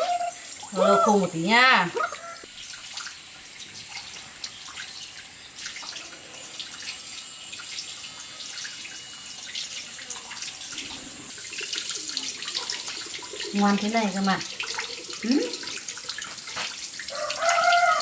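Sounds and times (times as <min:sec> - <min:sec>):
water trickling and splashing: 0:00.0 - 0:18.0
small water drips: 0:02.0 - 0:18.0.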